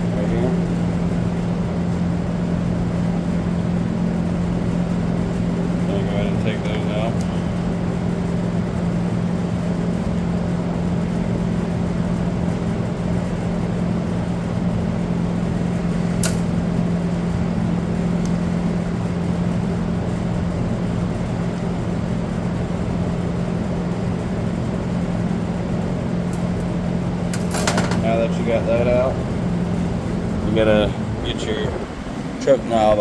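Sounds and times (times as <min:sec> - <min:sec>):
steady machine hum: 0:00.0 - 0:33.0
sharp click: 0:16.2 - 0:16.5.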